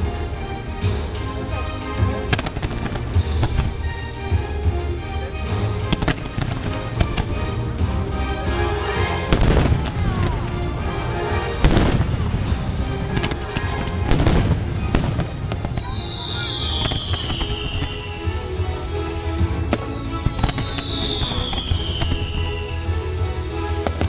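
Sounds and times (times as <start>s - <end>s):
fireworks cracking and booming: 0.0s - 24.0s
music: 0.0s - 24.0s
falling firework whistle: 13.2s - 18.7s, 19.6s - 23.1s.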